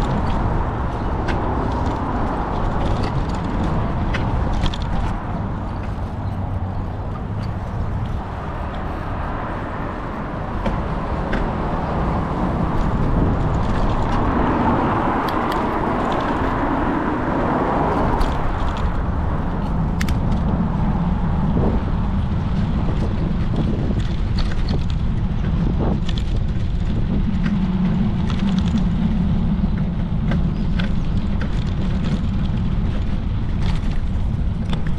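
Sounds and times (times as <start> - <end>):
vehicle passing by: 0.0 - 23.1
road traffic passing: 0.0 - 34.9.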